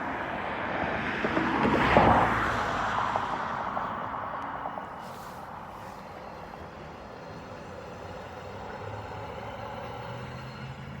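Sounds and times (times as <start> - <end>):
road hiss of passing vehicle: 0.0 - 11.0.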